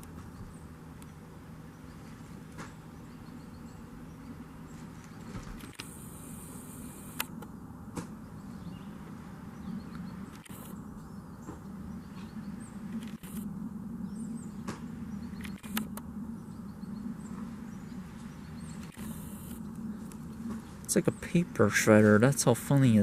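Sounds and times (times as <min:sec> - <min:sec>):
steady low hum: 0:00.0 - 0:23.0
sharp clicks: 0:05.5 - 0:08.1, 0:09.9 - 0:10.8, 0:12.9 - 0:13.5, 0:15.4 - 0:16.1, 0:18.8 - 0:20.3.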